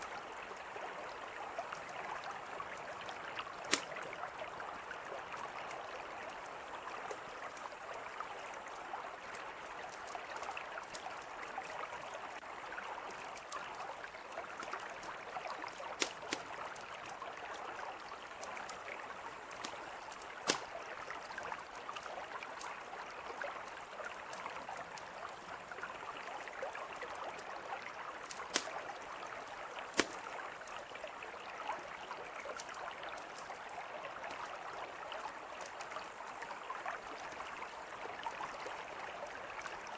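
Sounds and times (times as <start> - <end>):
river flowing: 0.0 - 39.9
campfire crackling: 2.8 - 4.4, 14.4 - 25.3, 28.1 - 31.0.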